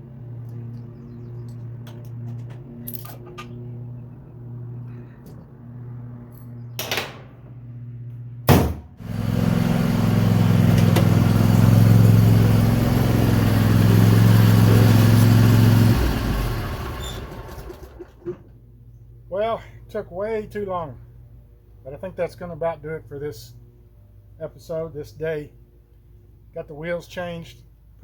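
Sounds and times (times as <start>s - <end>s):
mower engine starting and running: 9.0s - 18.7s.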